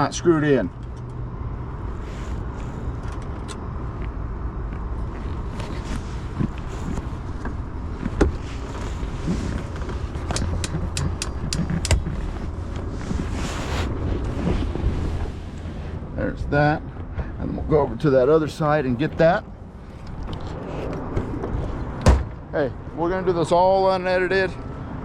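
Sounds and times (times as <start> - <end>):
metallic clicks and knocks: 10.2 - 12.2.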